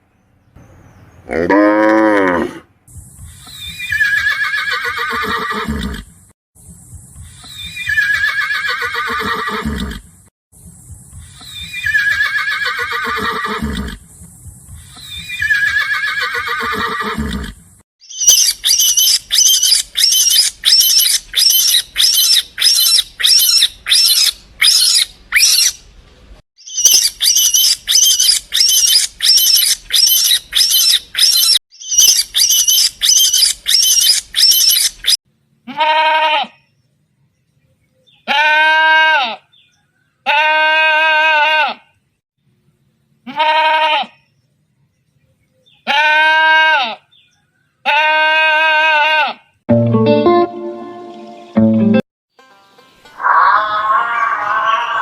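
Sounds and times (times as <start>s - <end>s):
horse whinnies: 3.8s - 6.1s, 7.8s - 10.1s, 11.7s - 14.0s, 15.2s - 17.6s
short high-pitched animal calls: 53.2s - 55.0s.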